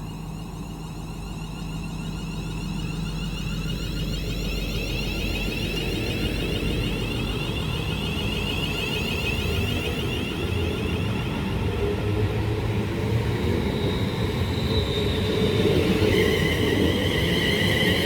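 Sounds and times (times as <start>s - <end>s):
high train whine: 0.0s - 18.0s.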